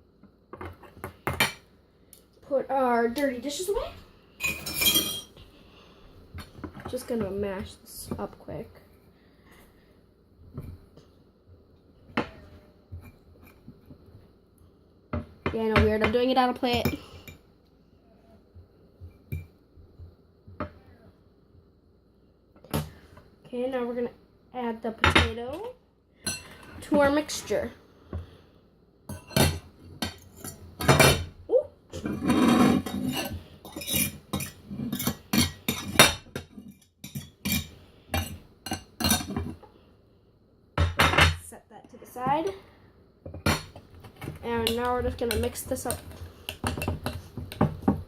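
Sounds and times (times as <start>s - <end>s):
cutlery scraping a dish: 31.9s - 39.6s.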